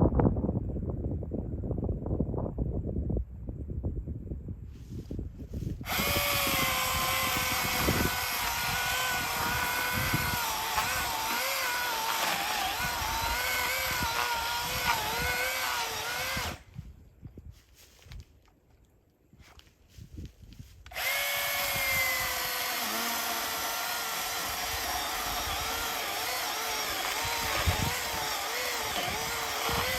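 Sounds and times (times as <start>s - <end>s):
electric chainsaw cutting wood: 5.8s - 16.7s, 20.9s - 29.9s.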